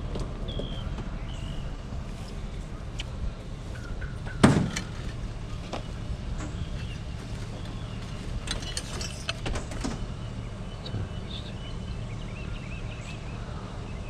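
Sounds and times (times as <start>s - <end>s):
vehicle rumbling: 0.0s - 14.0s
clattering rattles: 4.0s - 10.2s.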